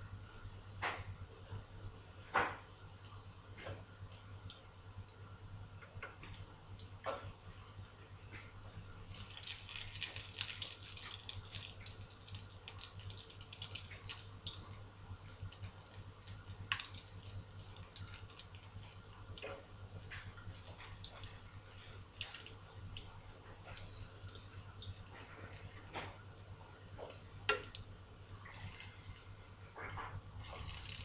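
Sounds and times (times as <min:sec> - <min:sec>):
food frying in oil: 0:08.9 - 0:31.0.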